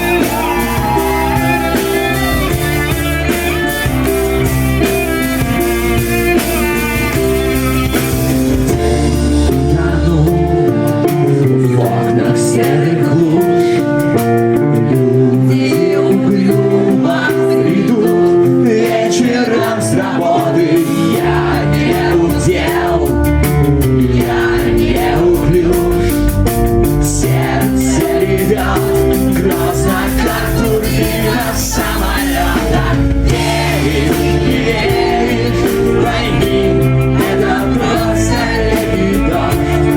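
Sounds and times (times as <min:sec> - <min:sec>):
rock band playing live: 0:00.0 - 0:39.9
person singing: 0:08.7 - 0:14.0, 0:14.8 - 0:23.1, 0:27.2 - 0:39.9.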